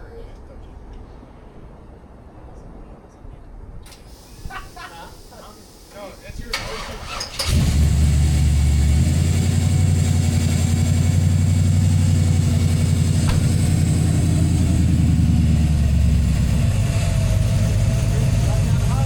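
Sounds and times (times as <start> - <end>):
vehicle engine idling: 3.9 - 19.0.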